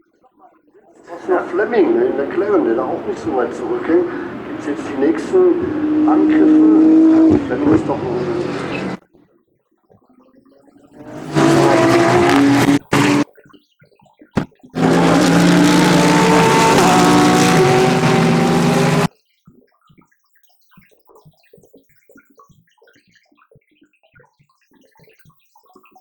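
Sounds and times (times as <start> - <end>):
race car engine at high revs: 1.0 - 9.0, 11.0 - 13.2, 14.8 - 19.1.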